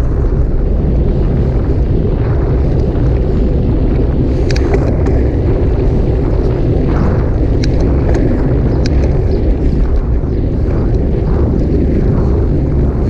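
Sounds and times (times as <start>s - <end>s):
wind rumble on microphone: 0.0s - 13.0s
sharp clicks: 4.4s - 5.2s, 6.9s - 10.1s.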